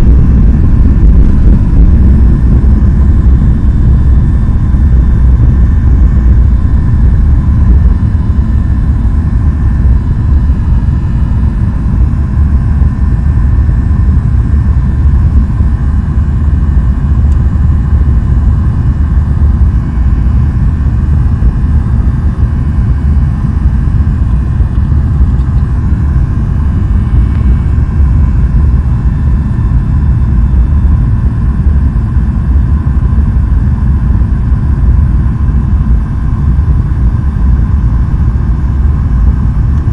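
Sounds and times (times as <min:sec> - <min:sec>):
high engine whine: 0:00.0 - 0:39.9
jet engines rumbling: 0:00.0 - 0:39.9.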